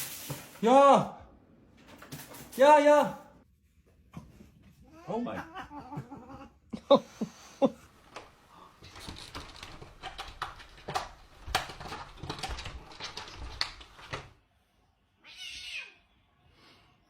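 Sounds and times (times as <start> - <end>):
cat meowing: 15.2 - 16.1.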